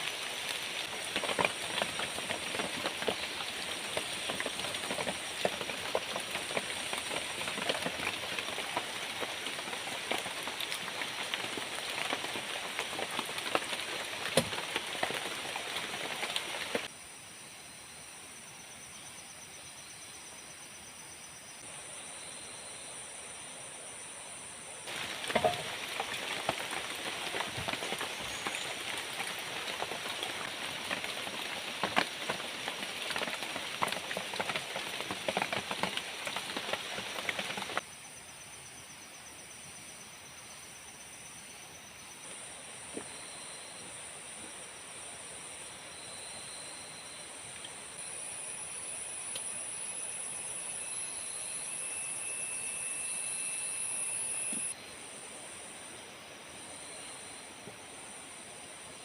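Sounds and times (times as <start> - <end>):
insects droning and trilling: 0.0 - 59.0
crackling pattering with sharp clicks: 0.1 - 16.9.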